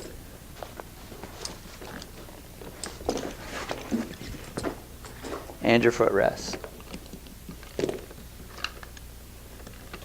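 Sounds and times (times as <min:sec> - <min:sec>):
straps rustling: 0:00.5 - 0:05.7.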